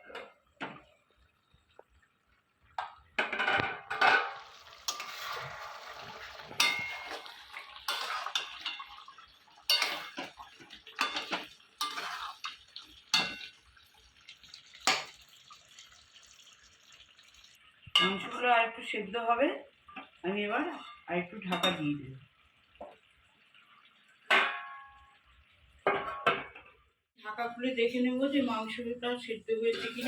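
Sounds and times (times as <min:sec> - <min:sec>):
gravy sizzling: 0:00.0 - 0:27.0, 0:27.7 - 0:30.0
metal utensil scraping a pan: 0:03.2 - 0:13.8, 0:14.6 - 0:15.3, 0:29.6 - 0:30.0.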